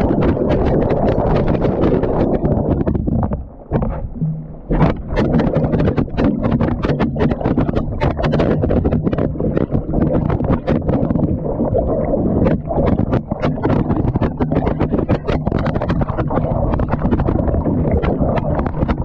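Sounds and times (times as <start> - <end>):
knocks and clatter in drum: 0.0 - 11.3, 12.4 - 19.0.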